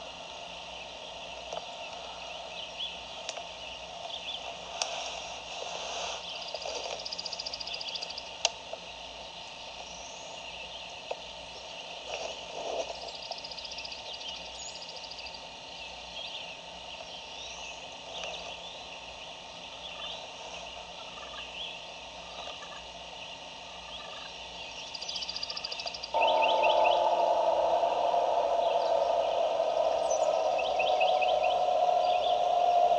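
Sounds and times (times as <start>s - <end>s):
distant turkey gobbling: 26.2s - 32.9s.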